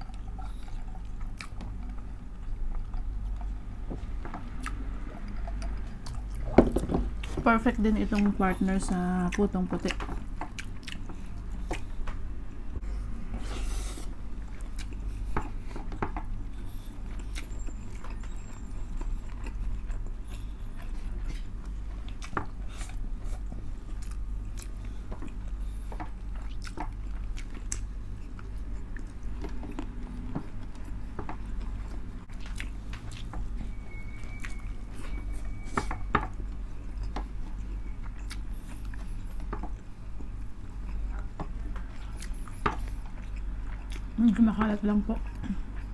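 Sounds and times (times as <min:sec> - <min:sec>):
wet chewing and lip smacks: 0:00.0 - 0:03.6, 0:09.3 - 0:12.3, 0:14.5 - 0:30.0, 0:30.6 - 0:33.3, 0:36.6 - 0:44.2
steady low hum: 0:00.0 - 0:45.9.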